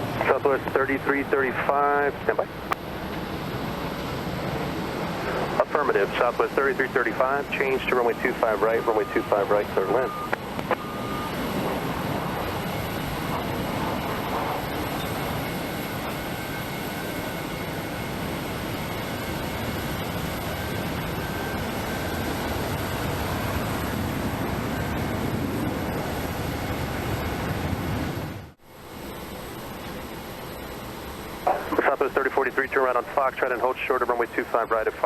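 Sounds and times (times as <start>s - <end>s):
jet airliner engines running: 0.0s - 35.0s.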